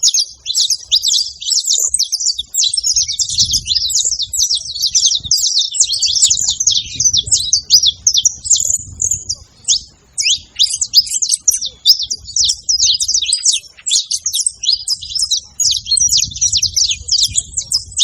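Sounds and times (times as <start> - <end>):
finch singing sharp chirps: 0.0 - 18.0.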